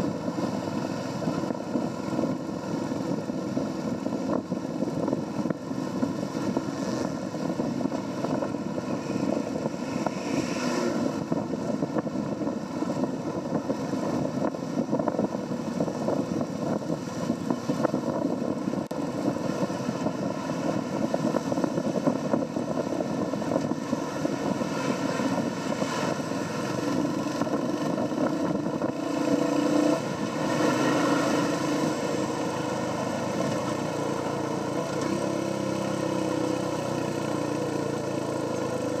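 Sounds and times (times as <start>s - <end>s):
wind and road noise: 0.0s - 39.0s
motorcycle engine: 11.0s - 39.0s.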